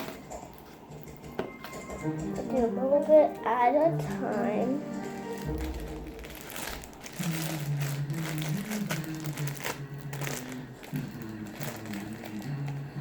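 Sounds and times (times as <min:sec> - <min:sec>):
plastic bag crinkling: 0:03.1 - 0:13.0.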